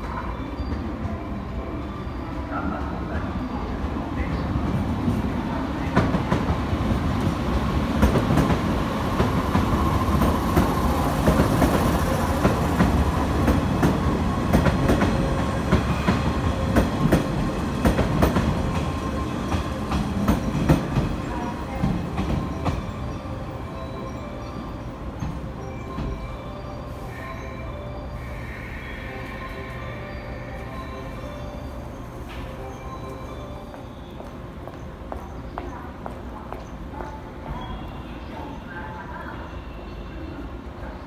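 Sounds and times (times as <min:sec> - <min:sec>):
train wheels rumbling on rail: 0:02.5 - 0:26.3.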